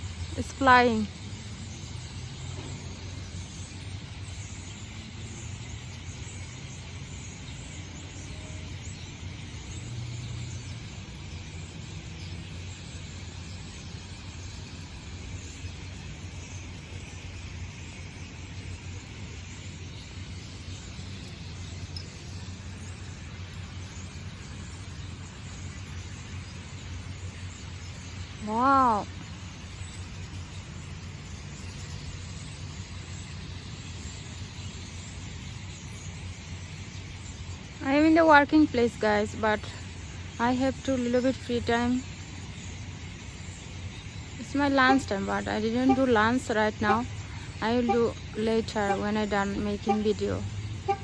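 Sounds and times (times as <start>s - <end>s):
even hiss: 0.0s - 51.0s.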